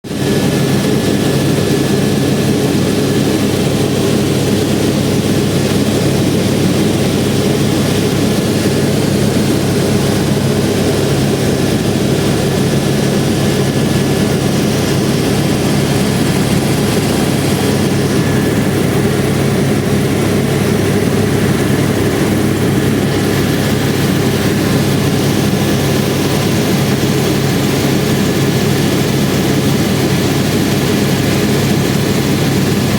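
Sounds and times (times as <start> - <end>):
helicopter engine and rotors: 0.0 - 32.9
thin high whine: 0.2 - 26.0.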